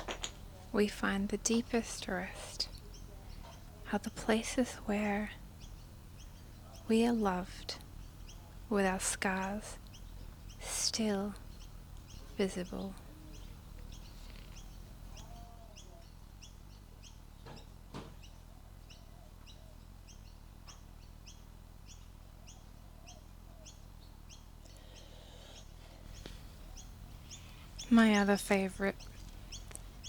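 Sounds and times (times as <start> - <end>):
small bird chirping: 1.9 - 30.0
faint knocks: 17.4 - 18.3.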